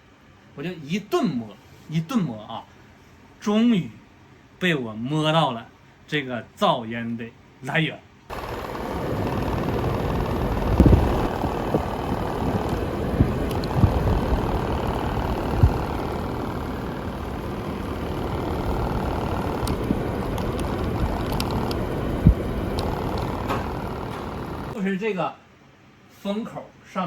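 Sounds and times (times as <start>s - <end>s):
air conditioner blowing air: 0.0s - 25.5s
foil tape rattling in airflow: 8.3s - 24.8s.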